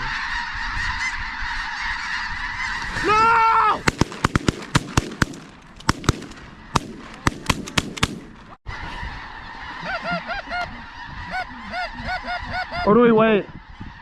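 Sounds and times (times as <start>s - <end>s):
geese honking in a flock: 0.0s - 3.4s, 8.6s - 14.0s
sharp clicks: 3.9s - 8.4s.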